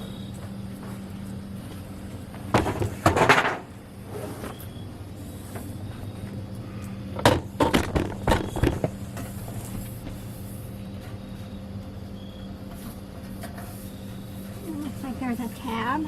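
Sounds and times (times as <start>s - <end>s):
steady low hum: 0.0s - 16.0s
grill parts knocking and clattering: 2.5s - 3.7s, 7.2s - 9.4s.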